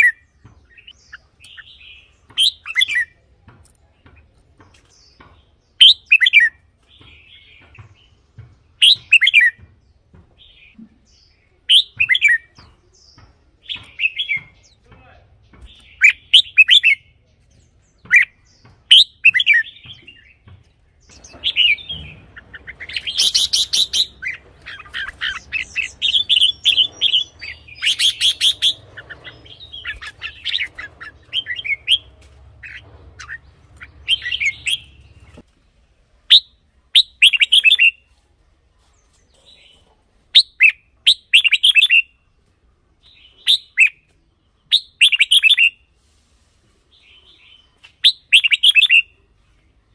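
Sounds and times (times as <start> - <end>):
bird singing whistled phrases: 11.7 - 12.5, 36.3 - 38.0, 40.4 - 42.1, 43.4 - 44.0, 44.7 - 45.8, 48.0 - 49.1.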